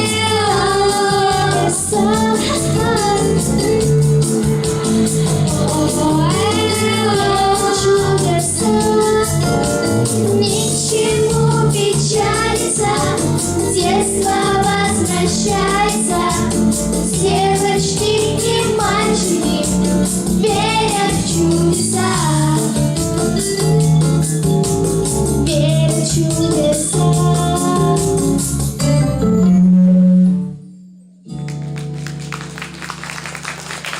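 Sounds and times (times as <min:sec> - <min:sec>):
voices singing pop song: 0:00.0 - 0:03.9, 0:05.2 - 0:09.6, 0:10.3 - 0:22.8.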